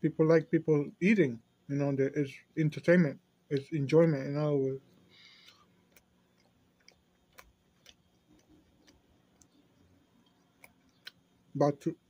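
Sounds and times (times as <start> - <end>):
low room hum: 0.0 - 12.0
soft mouth clicks chewing: 5.1 - 11.5.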